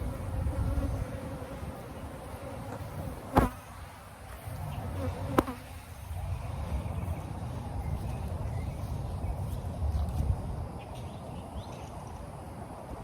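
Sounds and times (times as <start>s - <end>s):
honeybees buzzing: 0.0s - 6.0s.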